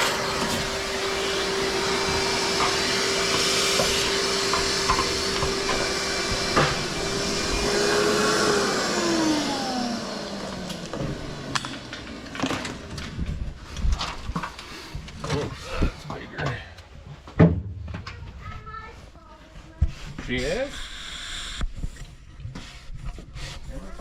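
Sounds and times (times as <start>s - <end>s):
shop vacuum running: 0.0s - 16.6s, 20.2s - 21.7s.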